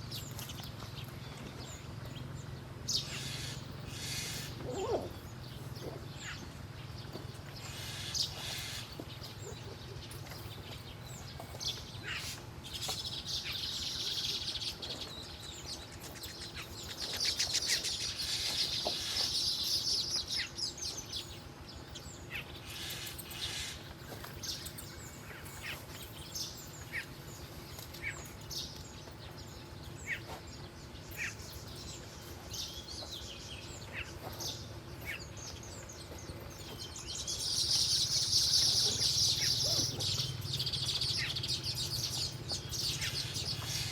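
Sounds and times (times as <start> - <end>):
wild birds chirping: 0.0 - 43.9
high bird twittering: 31.1 - 43.9.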